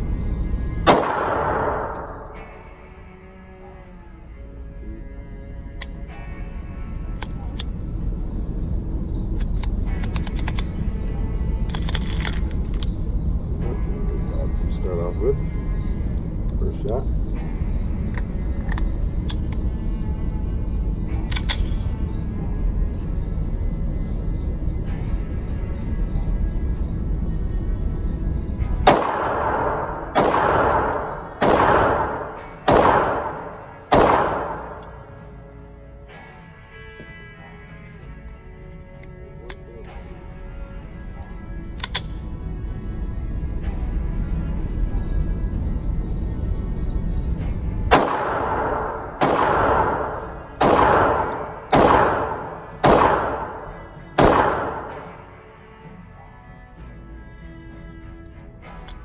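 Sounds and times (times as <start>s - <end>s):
pistol shots echoing: 0.8s - 2.6s, 28.8s - 35.1s, 47.9s - 55.3s.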